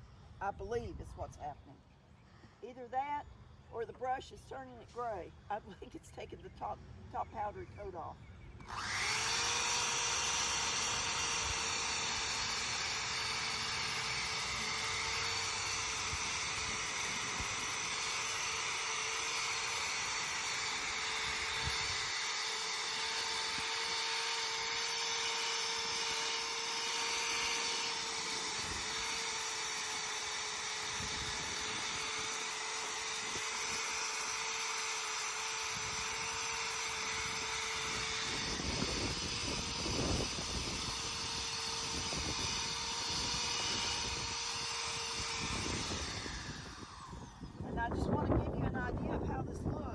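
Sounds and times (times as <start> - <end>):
electric drill running: 8.6 - 47.9.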